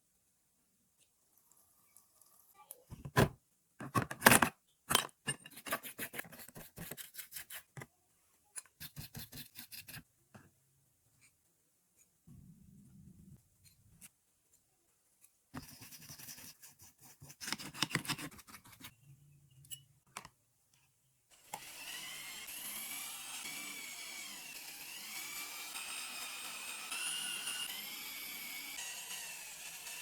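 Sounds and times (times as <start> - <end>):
power tool whining: 21.3 - 30.0.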